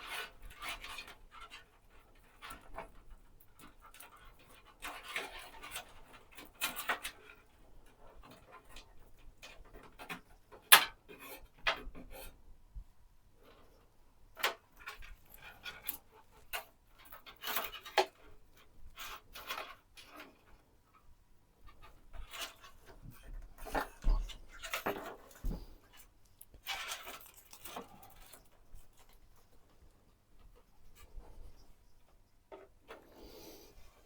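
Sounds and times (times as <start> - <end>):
hands handling computer parts: 22.4 - 33.2.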